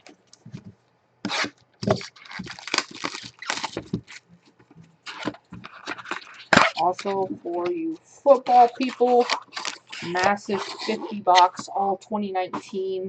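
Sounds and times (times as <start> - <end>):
packaging crinkling and ripping: 1.3 - 4.3, 5.0 - 7.2, 8.5 - 11.0.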